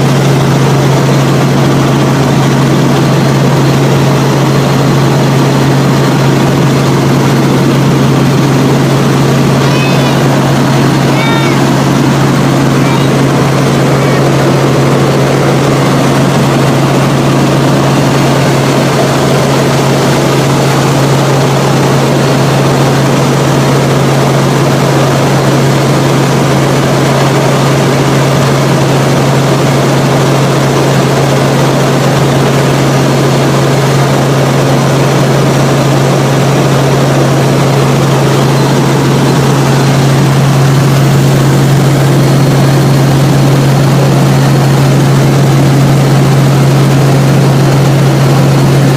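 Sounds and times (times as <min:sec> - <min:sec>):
helicopter engine and rotor drone: 0:00.0 - 0:48.9.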